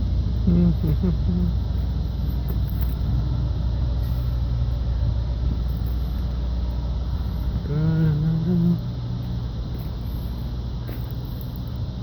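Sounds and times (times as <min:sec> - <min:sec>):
vehicle engines running: 0:00.0 - 0:12.0
person humming: 0:00.4 - 0:01.6, 0:07.6 - 0:08.9.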